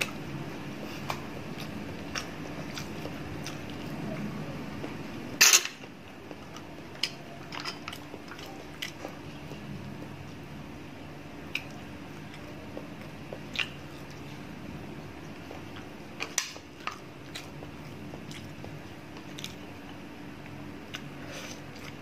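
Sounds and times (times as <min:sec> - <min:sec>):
steady low hum: 0:00.0 - 0:22.0
wet chewing and lip-smacking: 0:00.9 - 0:04.0, 0:11.4 - 0:14.4, 0:16.6 - 0:20.0, 0:20.9 - 0:22.0.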